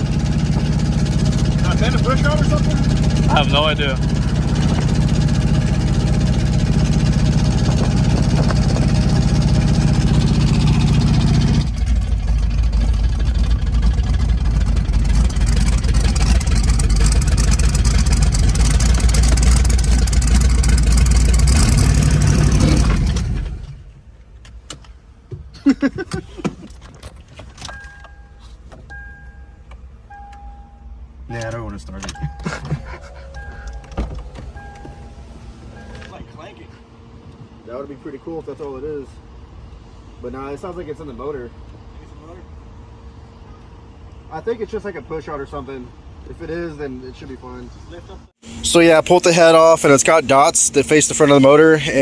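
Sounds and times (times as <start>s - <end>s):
car engine running: 0.0s - 25.3s, 27.2s - 46.4s, 48.4s - 52.0s
short electronic chime beeps: 27.7s - 31.0s, 32.2s - 36.2s.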